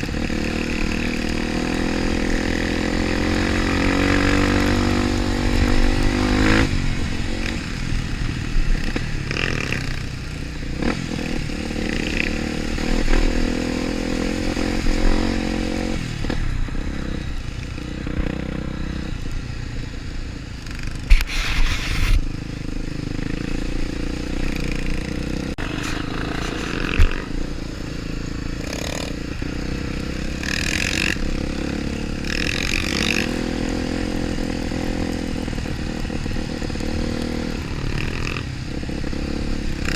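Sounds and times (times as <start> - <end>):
off-road vehicle engine revving: 0.0 - 7.6, 28.5 - 39.9.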